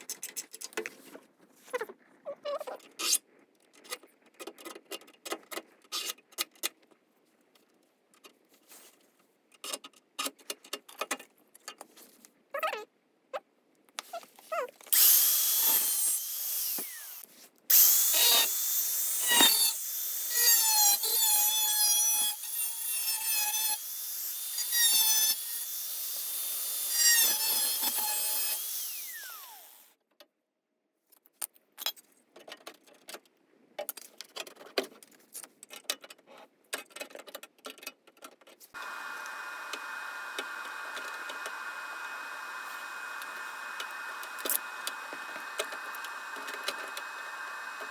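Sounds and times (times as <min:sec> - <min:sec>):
power tool whining on metal: 0:14.9 - 0:29.9, 0:38.8 - 0:47.9.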